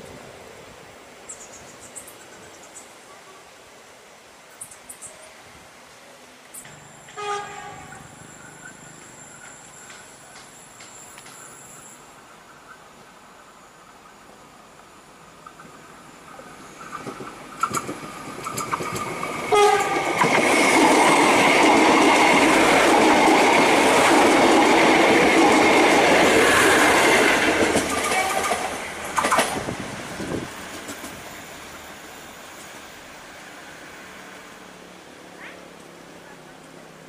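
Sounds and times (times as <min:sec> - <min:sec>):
rush of passing train: 0:00.0 - 0:37.0
train horn blast: 0:07.1 - 0:08.2, 0:19.5 - 0:20.2, 0:28.0 - 0:28.6
wheels clacking over rail joints: 0:07.1 - 0:11.6, 0:15.4 - 0:31.7.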